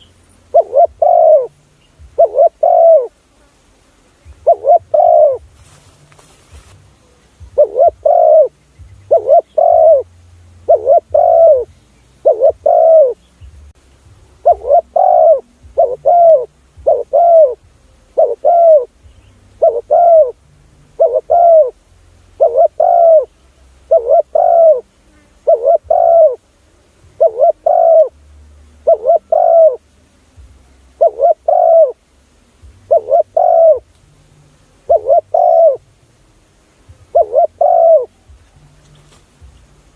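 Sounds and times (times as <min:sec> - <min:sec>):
dove cooing: 0:00.0 - 0:03.2, 0:04.3 - 0:05.5, 0:07.4 - 0:13.3, 0:14.4 - 0:19.0, 0:19.6 - 0:20.4, 0:21.0 - 0:26.5, 0:27.1 - 0:28.2, 0:28.8 - 0:29.9, 0:30.9 - 0:32.1, 0:32.8 - 0:33.9, 0:34.8 - 0:35.9, 0:37.0 - 0:38.5.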